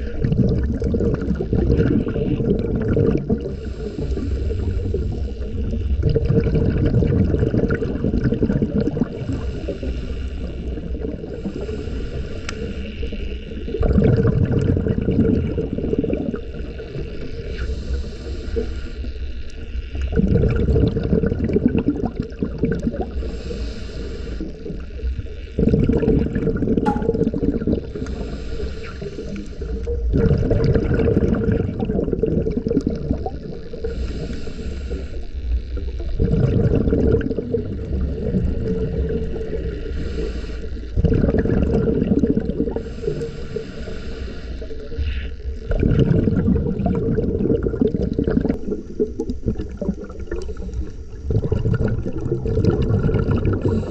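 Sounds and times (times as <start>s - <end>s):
diver exhaling bubbles underwater: 0.0s - 18.0s, 19.9s - 23.5s, 24.4s - 43.9s, 44.6s - 53.9s
steady low hum: 23.0s - 53.9s.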